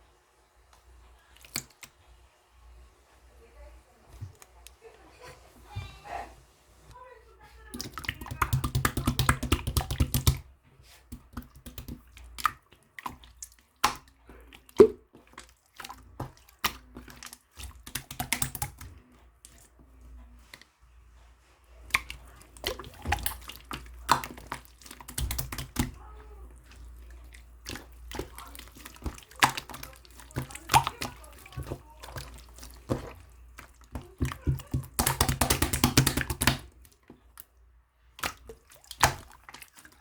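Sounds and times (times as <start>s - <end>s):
slime clicking and popping: 7.7s - 10.4s, 11.1s - 18.9s, 21.9s - 26.0s, 27.6s - 36.8s.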